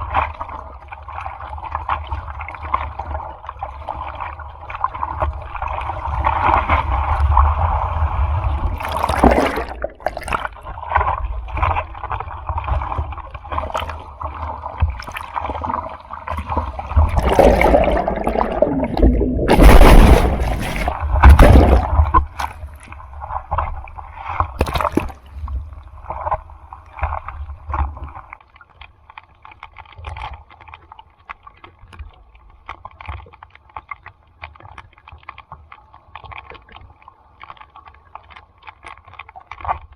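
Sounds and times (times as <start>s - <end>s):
low rumble: 17.0s - 22.3s
ocean surf splashing: 17.0s - 22.4s.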